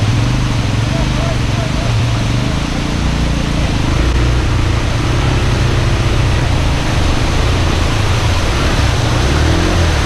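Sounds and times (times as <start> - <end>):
motorcycle engine at low revs: 0.0 - 10.0
running water: 0.0 - 10.0
waterfall rushing: 0.0 - 10.0.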